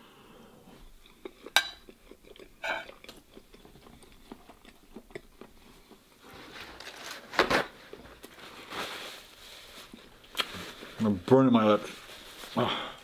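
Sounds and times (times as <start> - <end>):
man chewing noodles: 0.6 - 6.4
paper towel tearing from roll: 6.6 - 11.1.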